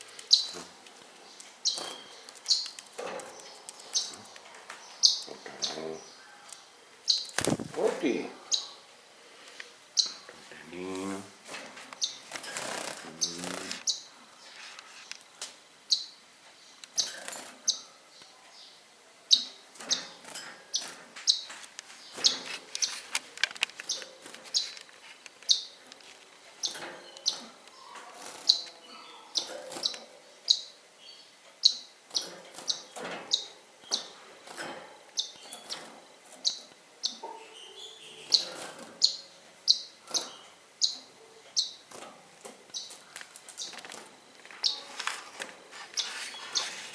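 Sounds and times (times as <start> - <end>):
pet birds chirping: 0.0 - 8.9, 10.0 - 10.3, 12.0 - 14.5, 15.8 - 41.9, 42.7 - 45.0, 45.8 - 46.9
faint ticks and rustles: 40.9 - 46.9.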